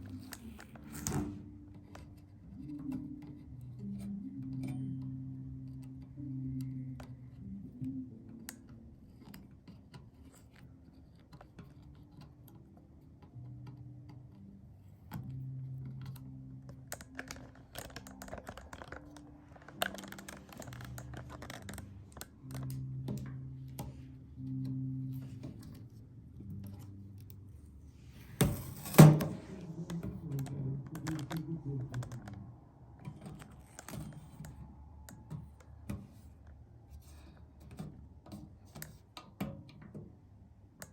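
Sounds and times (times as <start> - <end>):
faint low sustained notes: 12.1 - 28.4, 29.0 - 38.2.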